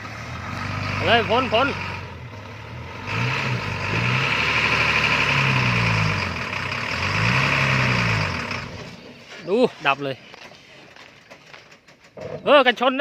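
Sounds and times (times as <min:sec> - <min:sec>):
truck diesel engine revving: 0:00.0 - 0:09.4.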